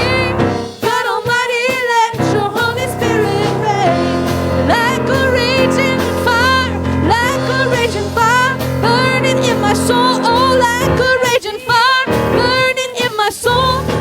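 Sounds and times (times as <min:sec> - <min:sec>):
bass line: 0:00.0 - 0:00.8, 0:02.2 - 0:11.2
keyboard chords: 0:00.0 - 0:01.0, 0:02.2 - 0:11.4
person singing with vibrato: 0:00.0 - 0:14.0.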